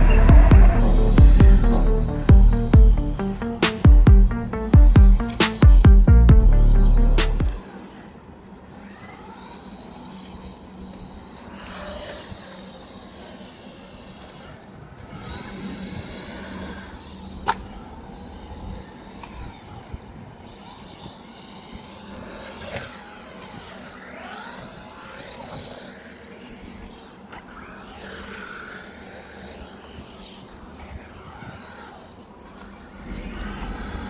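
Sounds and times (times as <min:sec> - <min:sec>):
steady low hum: 0:00.0 - 0:07.6
electric motor whining: 0:00.0 - 0:34.0
sharp click: 0:01.3 - 0:05.9, 0:07.0 - 0:07.6.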